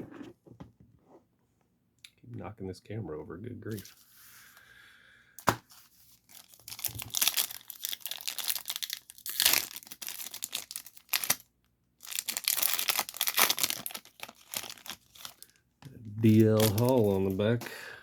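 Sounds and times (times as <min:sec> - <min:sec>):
wrapper tearing and crinkling: 0:06.2 - 0:15.6, 0:16.2 - 0:17.6.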